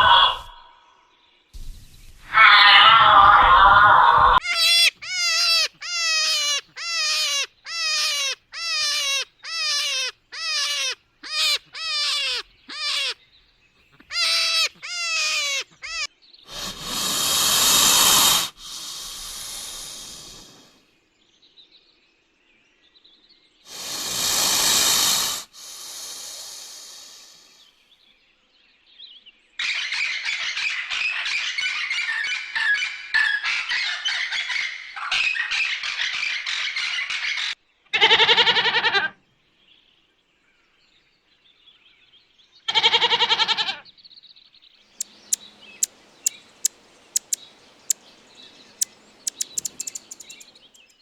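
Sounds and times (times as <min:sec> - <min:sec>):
long hissing animal calls: 0:00.0 - 0:00.8, 0:02.2 - 0:13.2, 0:14.1 - 0:20.9, 0:23.7 - 0:27.8, 0:45.0 - 0:50.9
rough animal call: 0:00.0 - 0:00.8, 0:02.2 - 0:13.2, 0:45.0 - 0:50.8
short descending animal calls: 0:00.0 - 0:00.8, 0:02.3 - 0:13.2, 0:45.0 - 0:50.6.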